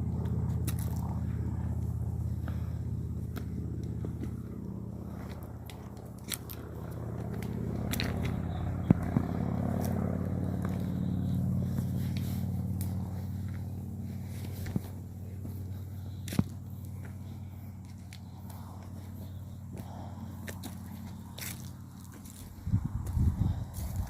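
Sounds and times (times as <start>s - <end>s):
steady low hum: 0.0s - 24.0s
twigs snapping underfoot: 5.2s - 10.0s
footsteps crunching dry leaves: 6.2s - 24.0s.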